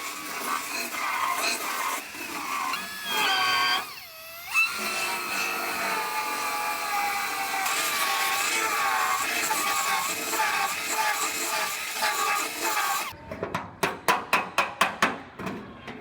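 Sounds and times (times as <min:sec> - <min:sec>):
grinder whining on sheet metal: 0:00.0 - 0:13.1.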